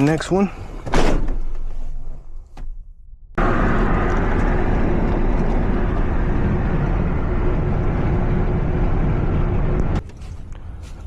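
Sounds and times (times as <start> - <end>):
vehicle road and engine noise: 3.4 - 11.0.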